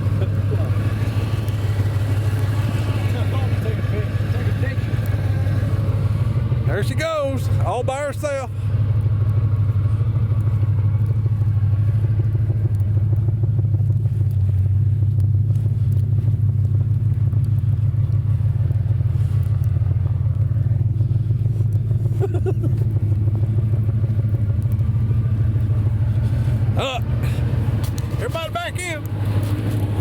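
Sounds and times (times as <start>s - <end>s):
truck engine running steadily: 0.0s - 30.0s.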